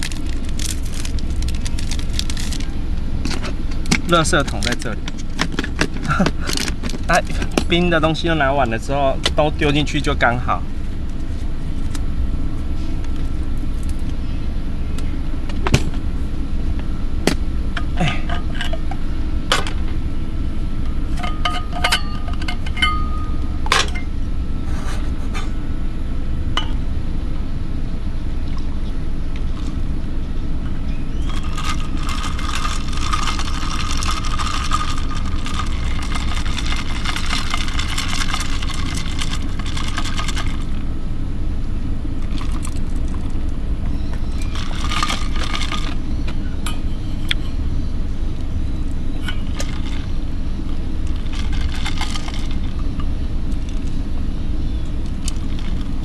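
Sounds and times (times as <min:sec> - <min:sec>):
ice rattling: 0:00.0 - 0:02.7, 0:31.2 - 0:40.8, 0:44.4 - 0:46.0, 0:49.3 - 0:50.1, 0:51.0 - 0:52.9, 0:55.2 - 0:56.0
low rumble: 0:00.0 - 0:56.0
ice cubes clinking: 0:31.2 - 0:40.7, 0:44.5 - 0:46.0, 0:51.1 - 0:52.8
liquid sloshing: 0:31.2 - 0:40.8, 0:44.4 - 0:46.0, 0:49.2 - 0:50.2, 0:51.0 - 0:53.0.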